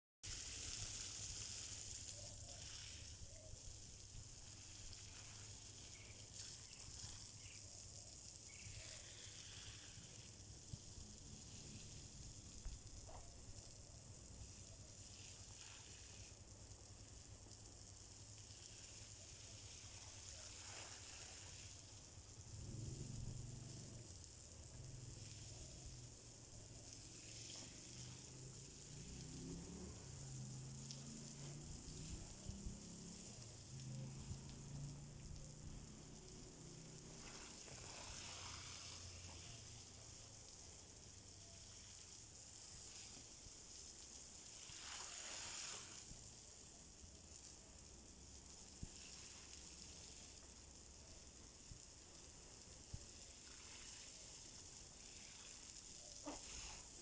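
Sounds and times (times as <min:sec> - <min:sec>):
running water hiss: 0:00.2 - 0:57.0.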